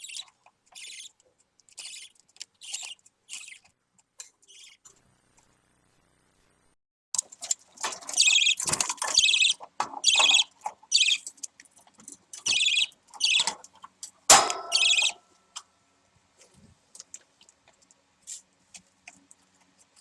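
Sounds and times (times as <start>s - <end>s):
budgerigar chick raspy calls: 14.3s - 15.2s.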